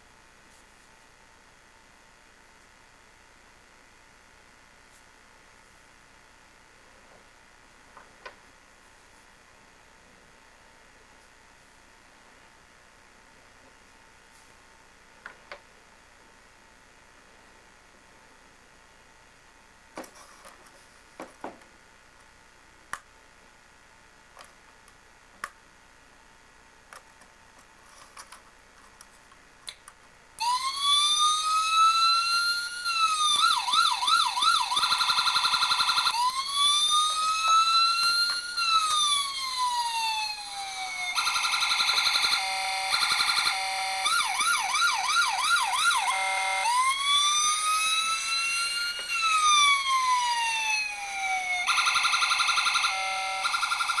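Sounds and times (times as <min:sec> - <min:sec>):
electronic siren wailing and yelping: 0:30.4 - 0:54.0.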